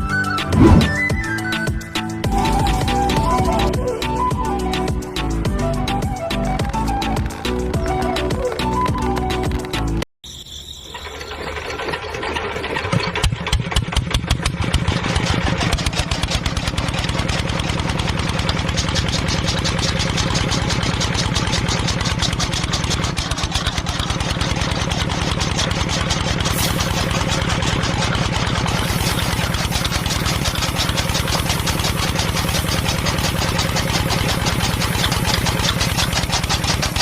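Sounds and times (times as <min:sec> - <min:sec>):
engine starting and idling: 0:10.7 - 0:37.0.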